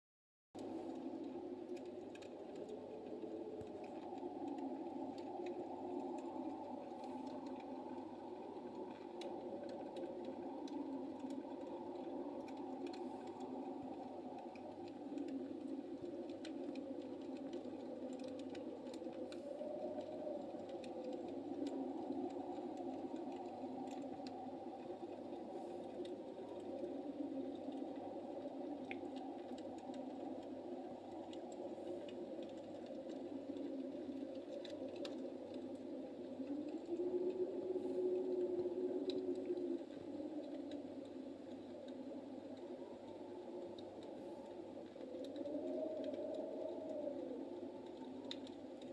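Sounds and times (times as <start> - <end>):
fire burning with crackles: 0.6 - 48.9.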